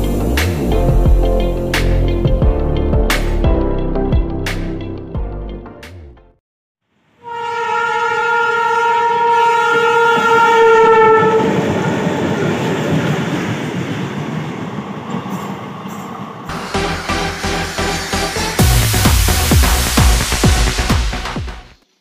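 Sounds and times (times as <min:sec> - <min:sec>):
locomotive horn blast: 0:07.2 - 0:11.8
train rushing past: 0:09.6 - 0:21.7.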